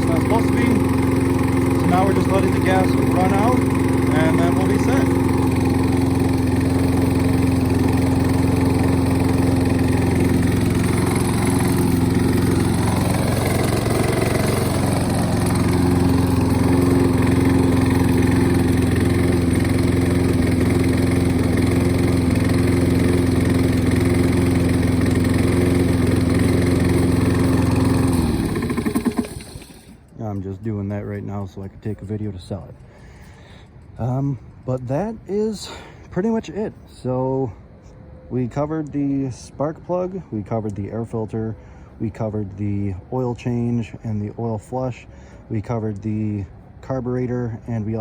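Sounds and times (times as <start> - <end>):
lawn mower engine running: 0.0 - 30.2.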